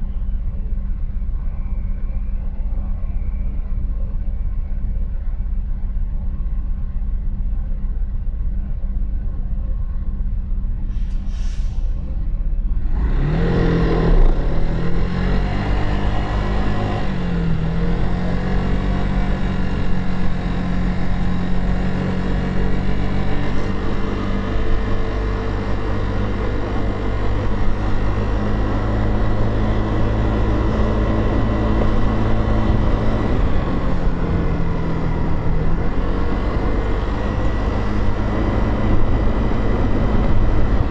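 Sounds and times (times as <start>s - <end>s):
road noise: 0.0s - 40.9s
motorcycle engine: 13.5s - 40.9s.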